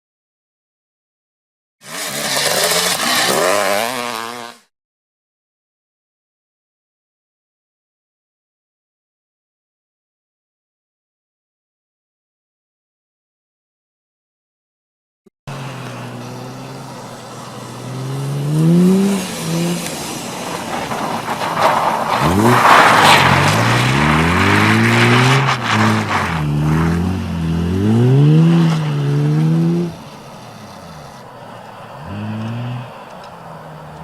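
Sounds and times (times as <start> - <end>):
tyre squeal: 1.8 - 4.2
car engine idling and revving: 15.5 - 34.0.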